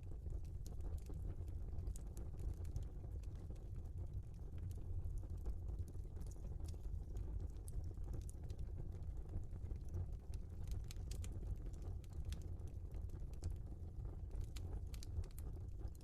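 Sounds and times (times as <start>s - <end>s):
log fire crackling: 0.0s - 16.0s.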